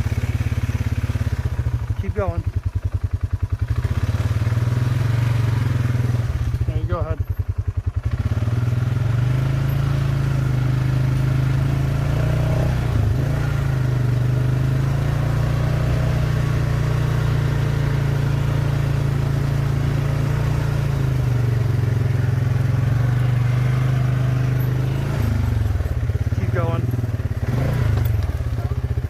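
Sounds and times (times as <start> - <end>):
atv engine running: 0.0 - 29.0.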